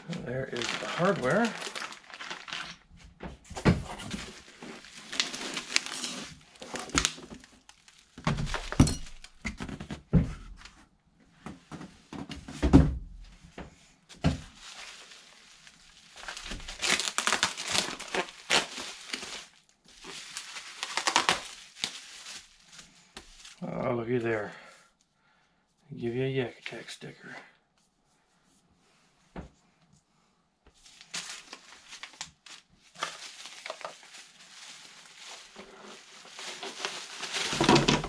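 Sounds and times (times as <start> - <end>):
plastic packaging crinkling: 0.0 - 3.0, 4.0 - 9.4, 14.5 - 23.6, 30.8 - 38.0.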